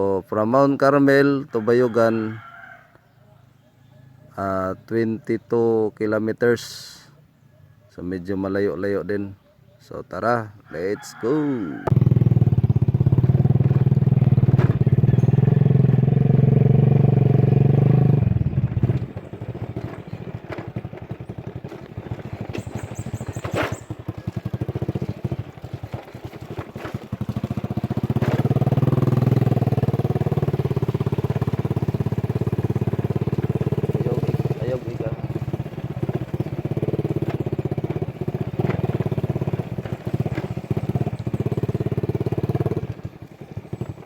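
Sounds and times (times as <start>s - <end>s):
motorcycle engine running: 11.0s - 44.0s.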